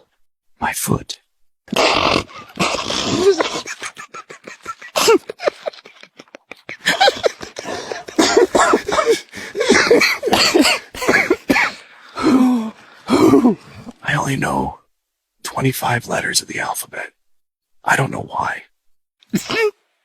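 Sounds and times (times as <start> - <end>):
person breathy cough-like bursts: 6.9 - 13.6.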